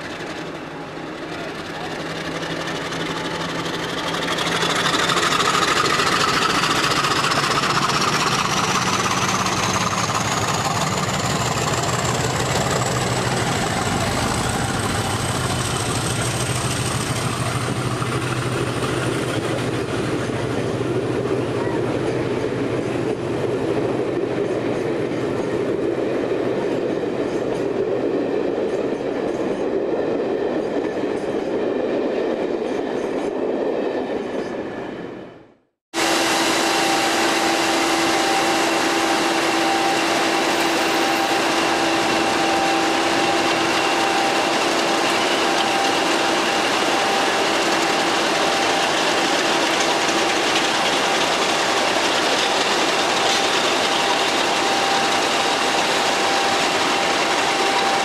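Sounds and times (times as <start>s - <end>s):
diesel locomotives idling: 0.0s - 25.7s, 36.0s - 58.0s
train coaches rolling past: 0.0s - 58.0s
steady whine: 36.0s - 58.0s.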